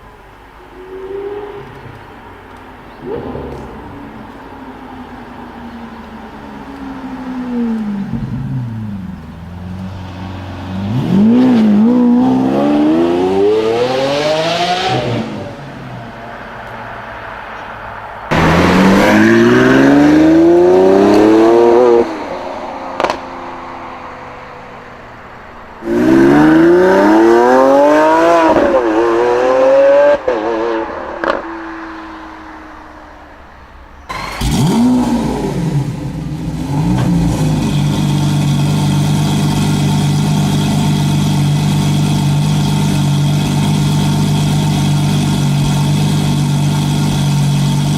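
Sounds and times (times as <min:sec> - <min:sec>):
exhaust crack: 0:01.6 - 0:12.2, 0:22.9 - 0:23.4, 0:34.1 - 0:47.9
car engine revving: 0:02.9 - 0:23.6, 0:25.8 - 0:31.9, 0:34.1 - 0:47.9.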